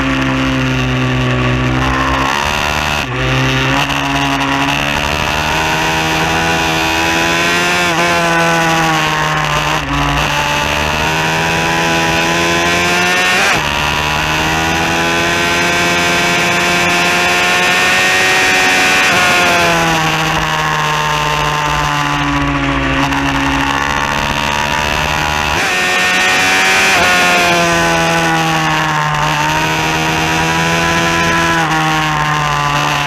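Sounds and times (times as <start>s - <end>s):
motorbike engine pulling hard: 0.0s - 33.0s.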